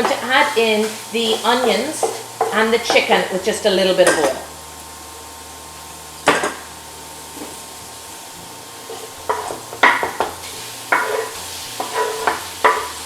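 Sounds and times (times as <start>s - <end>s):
food sizzling in a hot pan: 0.0s - 13.0s.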